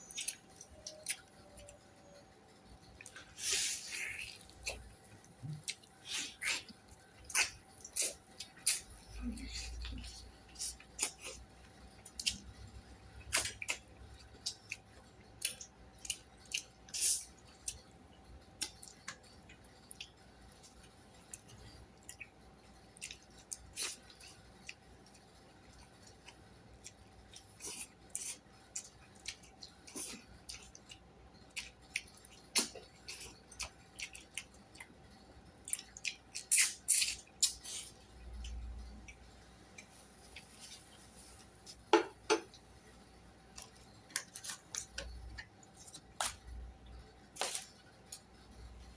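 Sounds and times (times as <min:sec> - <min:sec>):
chewing sounds: 0:00.0 - 0:01.8, 0:02.8 - 0:41.9
faint steady hum: 0:00.0 - 0:48.9.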